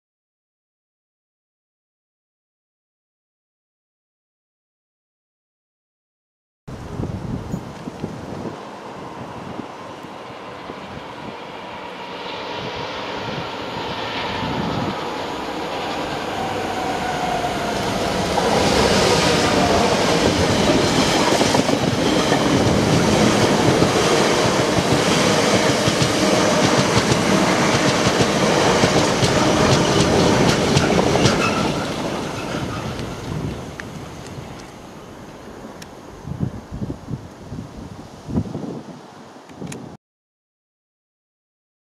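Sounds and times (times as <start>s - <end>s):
diesel locomotive passing: 7.4s - 36.4s
train wheel clatter: 15.0s - 34.1s.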